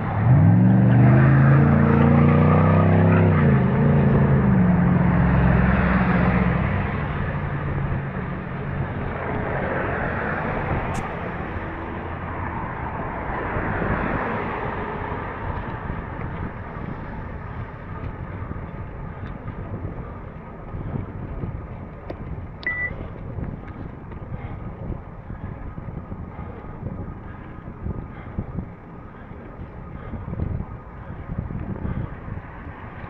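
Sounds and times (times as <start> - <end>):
road and wind noise: 0.0 - 33.0
wind buffeting microphone: 0.0 - 33.0
brief high beep: 22.6 - 23.0.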